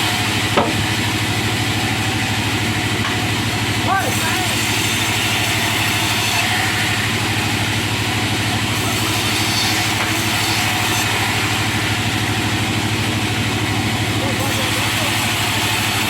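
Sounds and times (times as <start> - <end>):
sawmill engine drone: 0.0 - 16.0
saw hissing through wood: 3.9 - 7.6, 8.6 - 12.6, 14.3 - 16.0.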